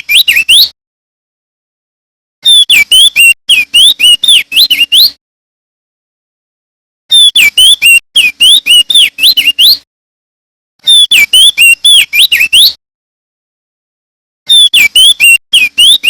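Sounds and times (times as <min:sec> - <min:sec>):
bird whistled song: 0:00.0 - 0:00.8, 0:02.4 - 0:05.2, 0:07.1 - 0:09.8, 0:10.8 - 0:12.8, 0:14.5 - 0:16.0.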